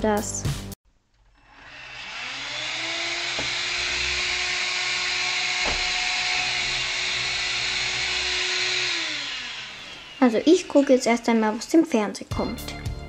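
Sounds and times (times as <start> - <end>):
small electric motor whirring: 1.3 - 11.8.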